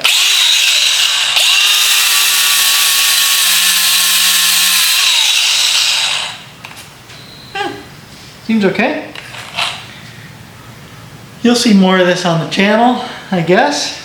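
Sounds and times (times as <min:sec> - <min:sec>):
grinder high-pitched whine: 0:00.0 - 0:06.5.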